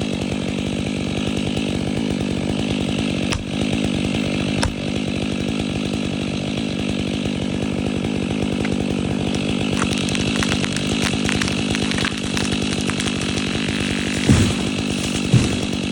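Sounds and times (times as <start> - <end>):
chainsaw engine running: 0.0 - 15.9
sharp thud: 4.6 - 4.8, 14.1 - 15.9
crackling: 9.3 - 15.9.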